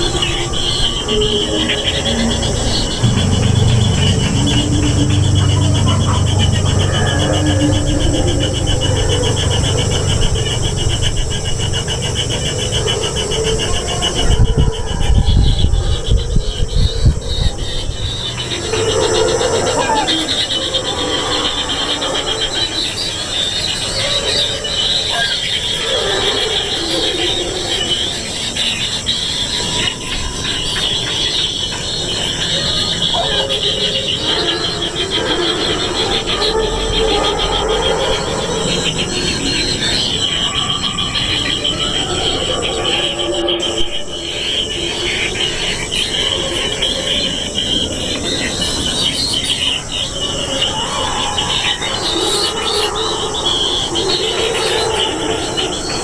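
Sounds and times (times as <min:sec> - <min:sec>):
nestlings begging buzz: 0:00.0 - 0:14.5
nestlings rasping chatter: 0:00.0 - 0:56.0.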